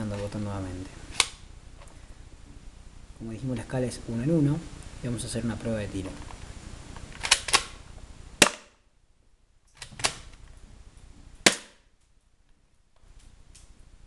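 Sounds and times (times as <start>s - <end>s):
airsoft pistol shot snap: 8.4s - 8.8s, 11.4s - 11.8s.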